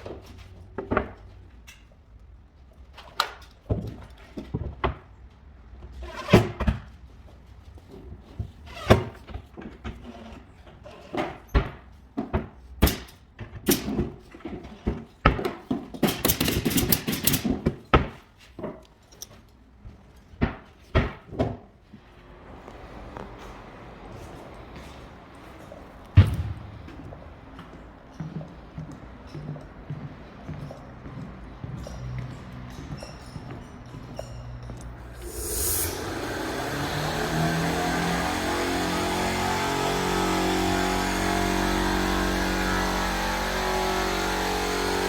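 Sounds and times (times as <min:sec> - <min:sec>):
carpentry knocks and thuds: 0:11.2 - 0:18.8.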